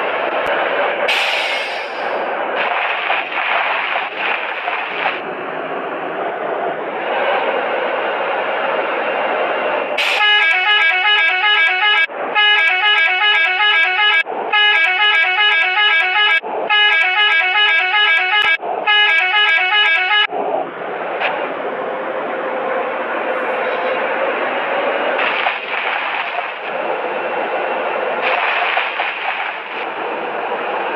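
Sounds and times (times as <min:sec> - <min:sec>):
vehicle running: 0:00.0 - 0:30.9
musical horn playing tune: 0:10.0 - 0:20.3.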